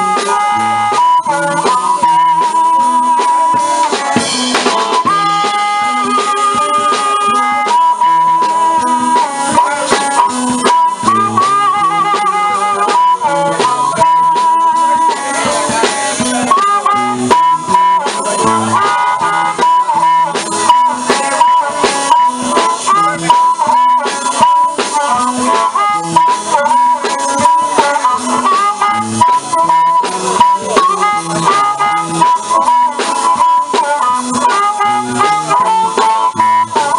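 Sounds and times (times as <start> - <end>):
drums: 0.0 - 36.9
guitar: 0.0 - 36.9
harmonica lead: 0.0 - 36.9
stepping bass line: 0.0 - 36.9.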